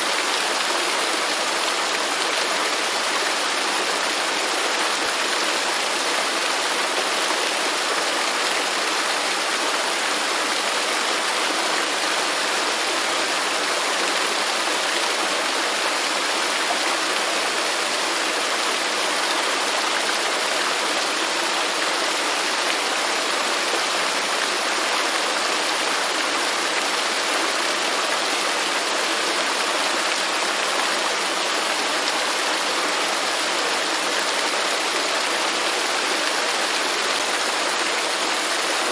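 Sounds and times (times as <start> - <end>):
waterfall: 0.0 - 38.9.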